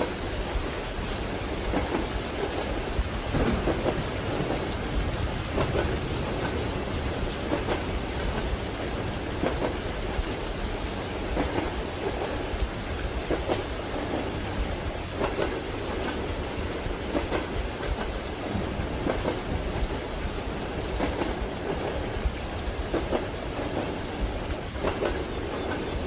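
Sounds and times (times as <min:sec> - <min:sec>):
rumble of moving train carriage: 0:00.0 - 0:26.0
steady rain: 0:00.0 - 0:26.0
train wheels clacking: 0:00.0 - 0:26.0.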